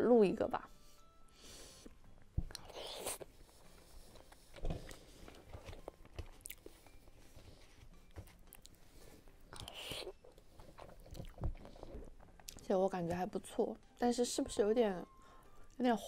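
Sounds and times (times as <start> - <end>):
person chewing: 2.2 - 7.0, 9.5 - 12.6.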